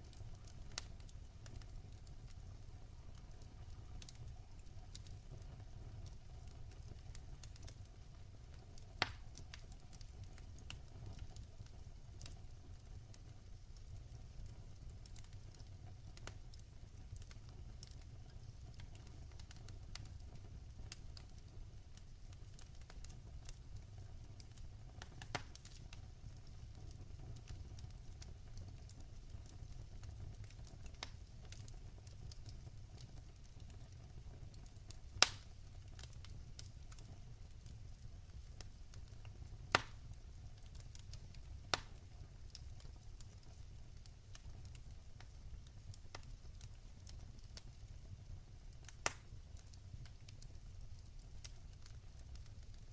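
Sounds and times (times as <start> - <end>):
fire crackling: 0.0 - 52.9
wood fire rumbling: 0.0 - 52.9
sharp pops of burning wood: 9.0 - 10.8, 24.5 - 25.8, 35.0 - 38.0, 38.7 - 45.4, 48.8 - 50.4.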